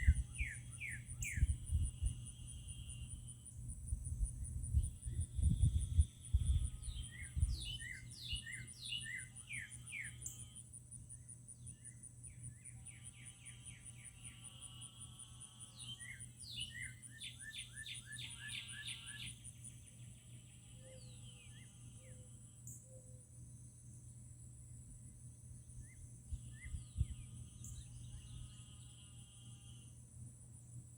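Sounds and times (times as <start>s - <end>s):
songbird chirping: 0.0s - 3.3s, 4.0s - 10.6s, 11.2s - 23.2s
high-pitched insect trill: 0.0s - 30.9s.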